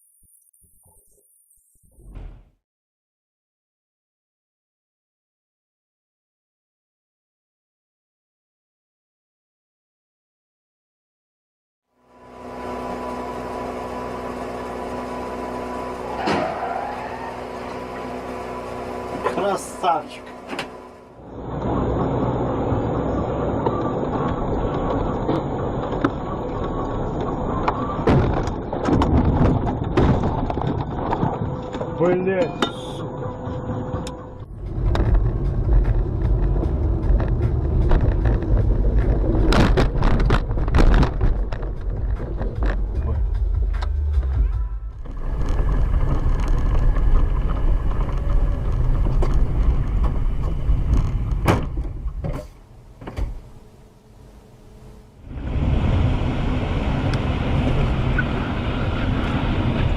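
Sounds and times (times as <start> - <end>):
car road and engine rumble: 12.0 - 59.9.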